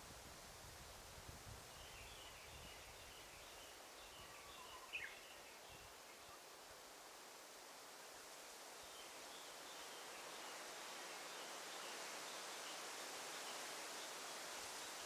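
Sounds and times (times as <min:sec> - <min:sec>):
soft steady hiss: 0:00.0 - 0:15.0
faint bird chirps: 0:01.7 - 0:06.5.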